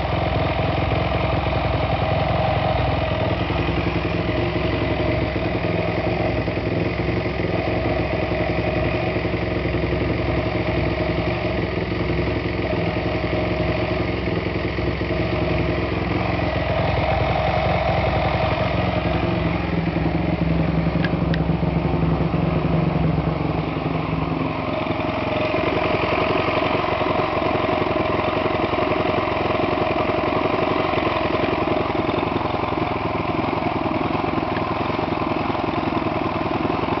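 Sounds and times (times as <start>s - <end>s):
motorcycle engine idling: 0.0s - 37.0s.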